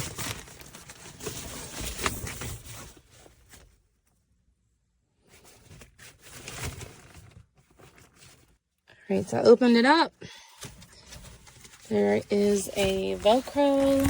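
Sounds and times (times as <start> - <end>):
sun shade fabric crinkling: 11.0 - 14.0.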